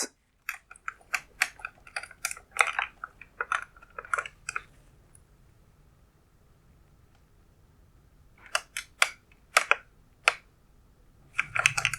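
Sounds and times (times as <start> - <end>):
light clicks and taps: 0.4 - 5.3, 11.3 - 11.9.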